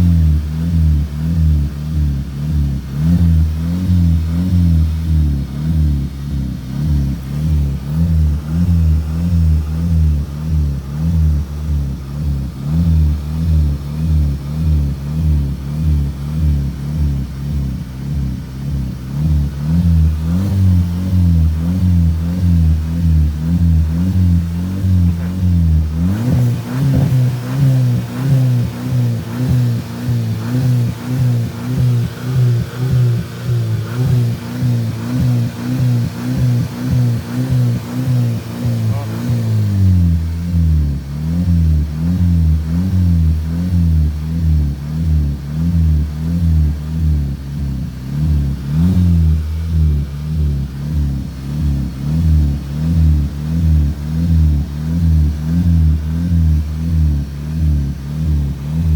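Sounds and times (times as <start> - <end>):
car engine revving: 0.0 - 58.9.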